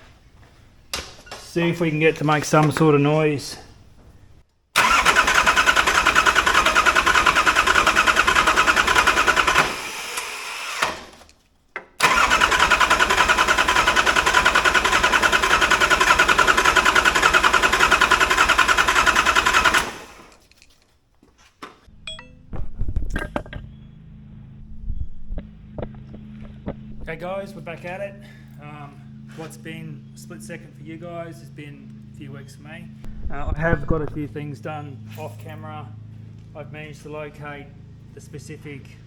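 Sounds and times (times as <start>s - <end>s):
diesel engine cranking on starter: 4.8s - 11.2s, 12.0s - 20.4s.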